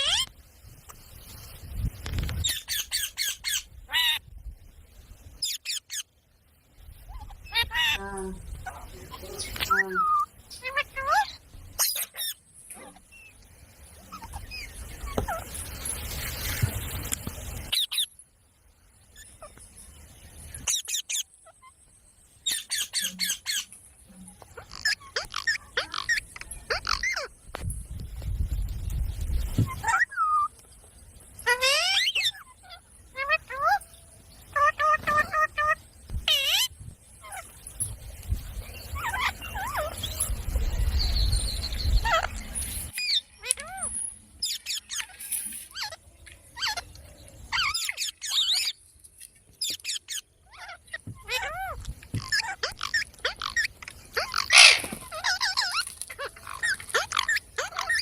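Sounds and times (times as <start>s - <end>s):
parakeet chirps and squawks: 0.0s - 0.3s, 2.4s - 4.2s, 5.4s - 6.1s, 7.0s - 13.3s, 14.0s - 15.6s, 17.7s - 18.1s, 20.5s - 21.8s, 22.4s - 27.3s, 29.6s - 30.5s, 31.4s - 33.9s, 34.5s - 37.9s, 38.8s - 40.4s, 41.0s - 48.8s, 49.6s - 58.0s.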